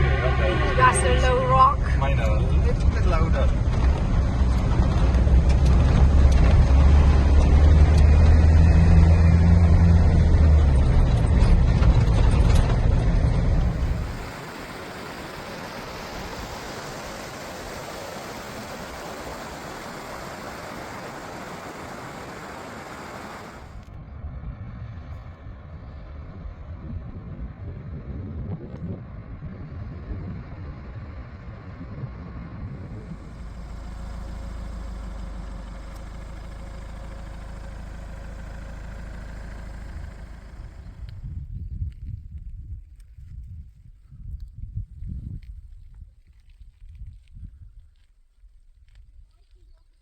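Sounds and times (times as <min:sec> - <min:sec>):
vehicle engine and road drone: 0:00.0 - 0:43.6
even hiss: 0:13.6 - 0:23.8.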